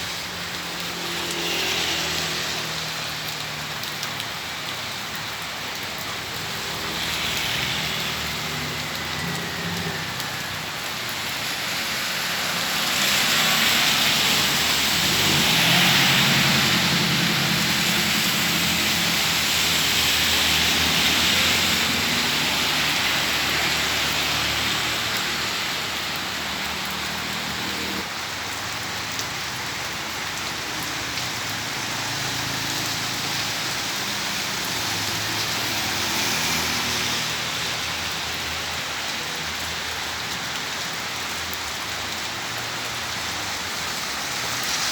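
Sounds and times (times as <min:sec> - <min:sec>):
heavy rain pouring: 0:00.0 - 0:44.9.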